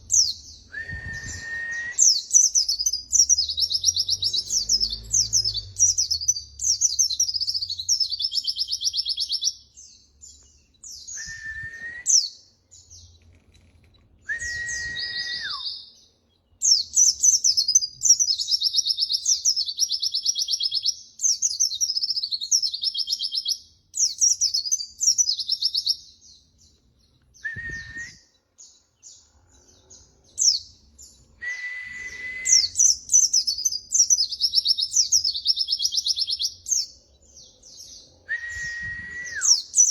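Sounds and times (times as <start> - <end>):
bird twittering song: 0.0 - 39.9
low steady whistle: 0.7 - 2.2, 11.1 - 12.2, 14.3 - 15.7, 27.4 - 28.3, 31.4 - 32.9, 38.3 - 39.6.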